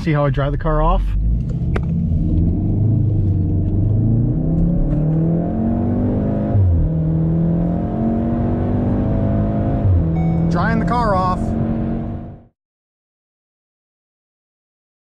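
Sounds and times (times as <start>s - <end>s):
car engine accelerating: 0.0s - 12.5s.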